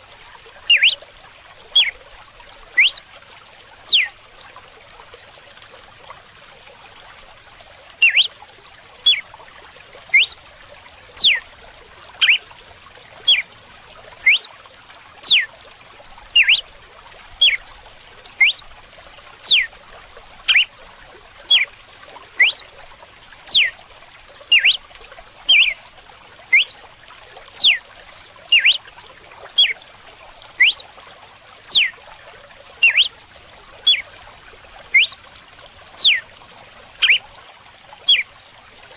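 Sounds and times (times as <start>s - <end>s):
running water trickling: 0.0s - 38.9s
bird whistling sharp notes: 0.7s - 1.0s, 2.8s - 3.0s, 3.9s - 4.1s, 8.0s - 8.3s, 10.2s - 10.4s, 11.2s - 11.4s, 14.2s - 14.5s, 15.2s - 15.5s, 16.4s - 16.6s, 18.4s - 18.6s, 19.4s - 19.7s, 22.4s - 22.6s, 23.5s - 23.7s, 24.5s - 24.8s, 25.5s - 25.8s, 26.5s - 26.8s, 27.6s - 27.8s, 28.5s - 28.8s, 30.6s - 30.8s, 31.7s - 31.9s, 32.8s - 33.1s, 35.0s - 35.2s, 36.0s - 36.2s, 37.0s - 37.2s.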